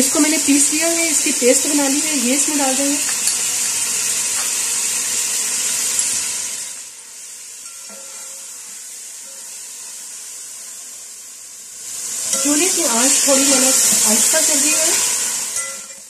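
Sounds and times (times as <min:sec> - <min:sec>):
chicken sizzling in hot oil: 0:00.0 - 0:16.0
metal spatula stirring in pot: 0:07.6 - 0:09.9.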